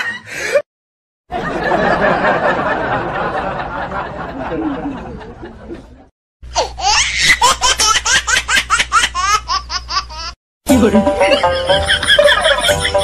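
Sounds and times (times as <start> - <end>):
high-pitched laughter: 11.2 - 13.0.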